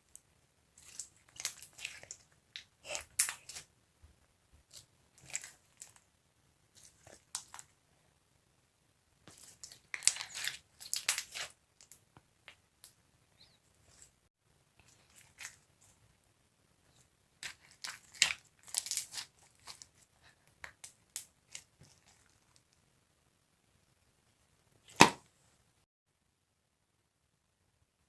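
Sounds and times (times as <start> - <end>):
slime crackling and popping: 0.8 - 3.7, 4.7 - 6.0, 9.3 - 12.0, 17.4 - 19.9.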